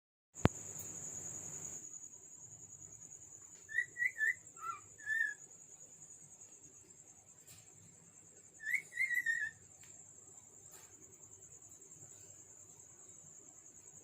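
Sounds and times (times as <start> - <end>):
cockatiel whistling: 3.7 - 5.4, 8.6 - 9.6.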